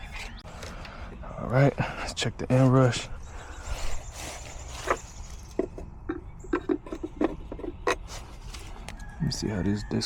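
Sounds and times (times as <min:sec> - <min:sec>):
tools clicking and knocking: 0:04.8 - 0:08.1.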